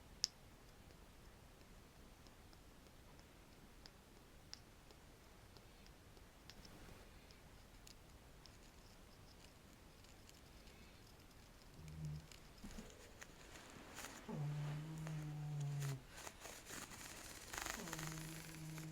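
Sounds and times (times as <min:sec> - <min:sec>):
soft scratching on small object: 0:06.6 - 0:18.9.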